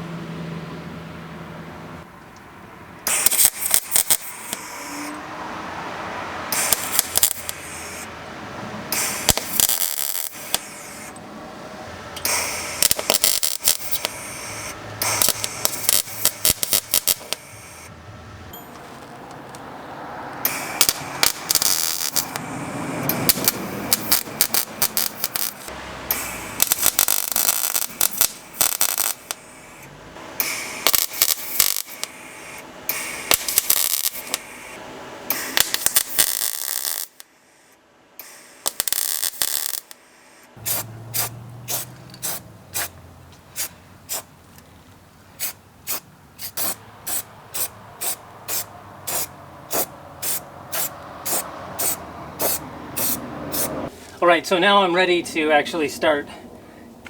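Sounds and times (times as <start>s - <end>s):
arc welder crackling: 3.0s - 11.2s, 12.1s - 17.9s, 20.3s - 37.3s, 38.2s - 40.0s, 40.6s - 44.4s, 45.4s - 53.8s.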